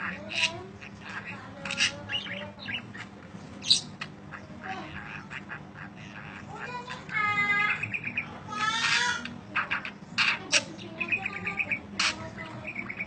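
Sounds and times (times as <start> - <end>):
harsh parakeet squawks: 0.0 - 13.0
parakeets chattering: 0.0 - 13.0.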